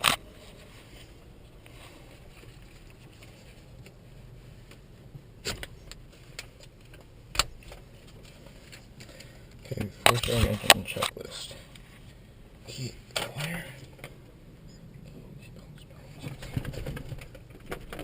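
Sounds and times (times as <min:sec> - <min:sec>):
faint background noise: 0:00.0 - 0:18.0
sharp handling clicks and knocks: 0:16.2 - 0:18.0.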